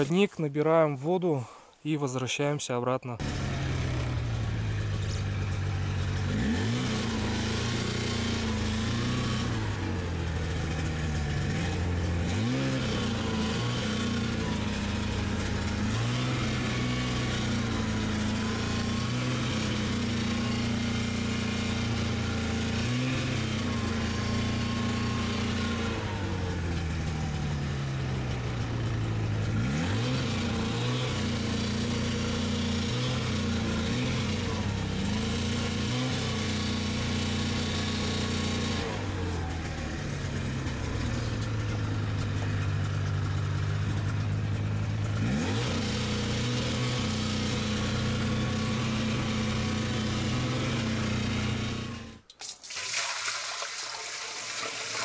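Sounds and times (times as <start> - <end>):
snowmobile engine revving: 3.2 - 52.2.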